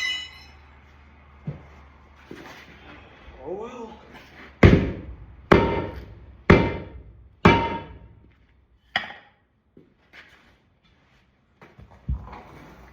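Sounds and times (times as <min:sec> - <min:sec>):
hammer blows on metal: 0:04.6 - 0:08.2.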